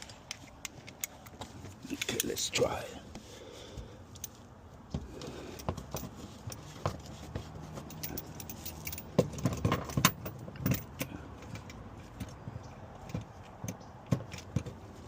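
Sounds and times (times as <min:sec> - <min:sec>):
metal hand tools clinking: 0:07.8 - 0:11.2.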